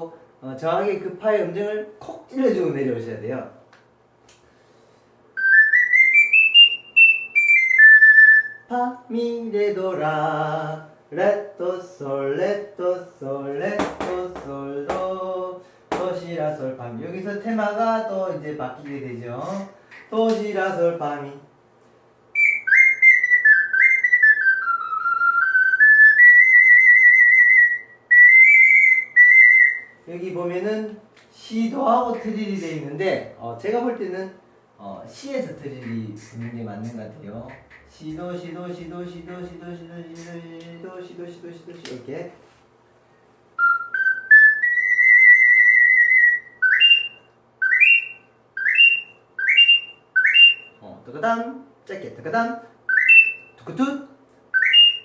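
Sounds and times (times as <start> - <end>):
ocarina playing: 5.4 - 8.8, 22.3 - 30.1, 43.6 - 50.8, 52.9 - 53.7, 54.5 - 55.0.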